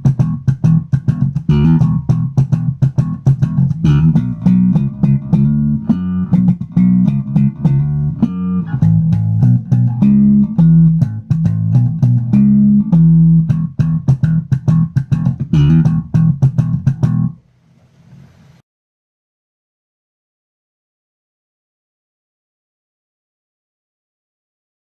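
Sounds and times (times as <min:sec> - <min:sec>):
electric bass guitar plucked notes: 0:00.0 - 0:17.4.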